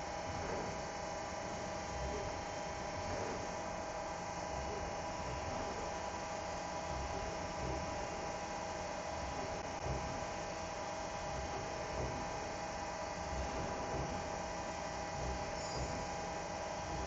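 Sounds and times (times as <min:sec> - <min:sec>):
machine hum with steady tones: 0:00.0 - 0:17.0.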